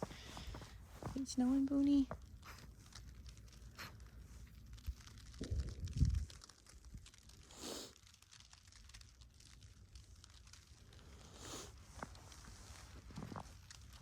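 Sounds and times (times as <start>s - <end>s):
footsteps crunching in wet snow: 0.0s - 5.4s, 11.7s - 14.0s
low rumble on microphone: 0.0s - 7.3s
faint crackling ticks: 0.0s - 14.0s.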